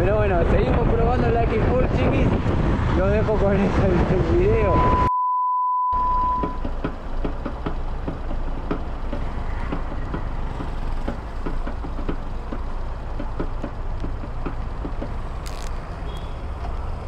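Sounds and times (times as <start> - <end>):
steady beep: 4.7 - 6.7.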